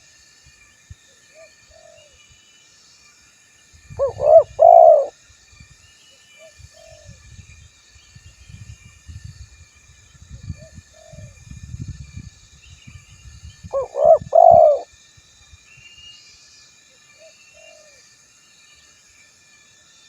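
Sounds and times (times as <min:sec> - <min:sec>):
dove cooing: 0:04.0 - 0:05.1, 0:13.8 - 0:14.9.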